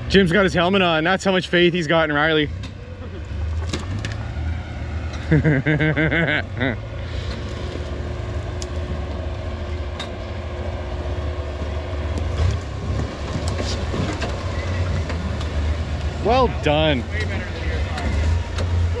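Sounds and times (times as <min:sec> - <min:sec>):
engine running at low speed: 0:00.0 - 0:19.0
person's voice: 0:16.2 - 0:18.1.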